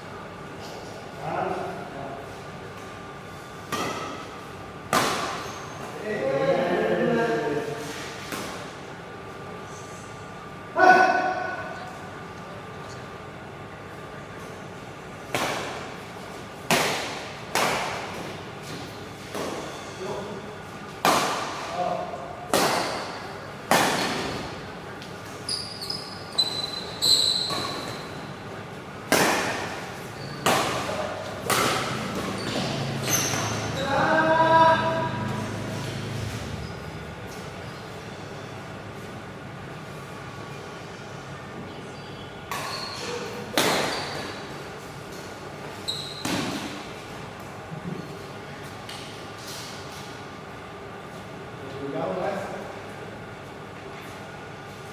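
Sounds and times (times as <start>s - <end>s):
racket hitting shuttlecock: 3.7s - 5.9s, 16.6s - 19.7s, 21.0s - 21.7s, 22.5s - 24.6s, 29.0s - 36.5s, 42.5s - 44.6s
shoes squeaking on floor: 25.0s - 28.4s, 30.0s - 38.8s, 42.0s - 44.8s, 45.7s - 46.6s
rackets striking shuttlecock: 29.1s - 33.8s.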